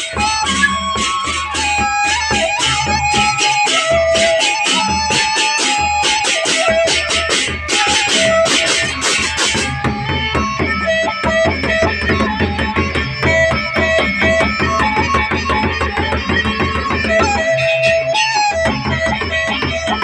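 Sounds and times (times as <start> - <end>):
bamboo flute melody: 0.0 - 20.0
clashing percussion: 0.0 - 20.0
large drums beating: 0.2 - 18.0.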